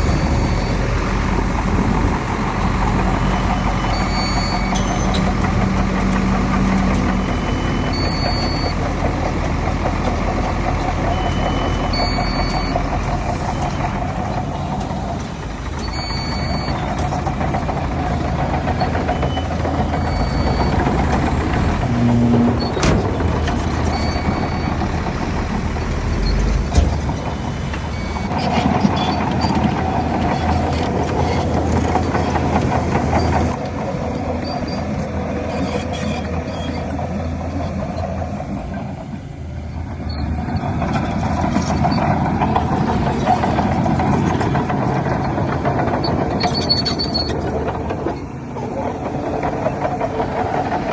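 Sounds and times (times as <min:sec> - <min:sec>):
reversing alarm beeps: 0:00.0 - 0:01.0, 0:02.9 - 0:05.8, 0:06.6 - 0:08.9, 0:11.0 - 0:13.8, 0:15.8 - 0:21.6, 0:23.8 - 0:26.5, 0:27.9 - 0:29.6
heavy diesel machinery under load: 0:00.0 - 0:50.9.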